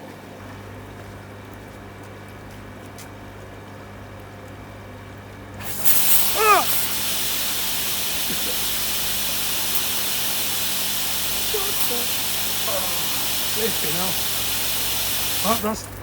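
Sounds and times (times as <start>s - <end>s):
water spraying with loud hiss: 5.6s - 16.0s
brief yelp: 6.1s - 7.0s, 11.4s - 13.6s.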